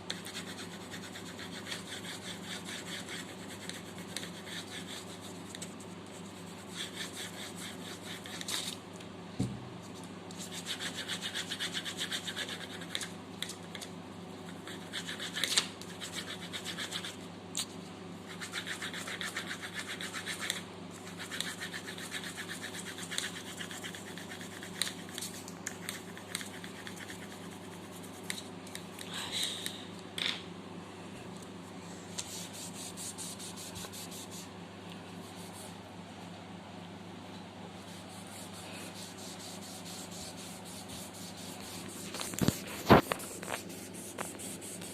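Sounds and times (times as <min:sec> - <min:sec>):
steady low hum: 0:00.0 - 0:44.9
pencil scratching on paper: 0:00.1 - 0:08.7, 0:10.4 - 0:13.1, 0:18.3 - 0:28.3, 0:37.9 - 0:44.9.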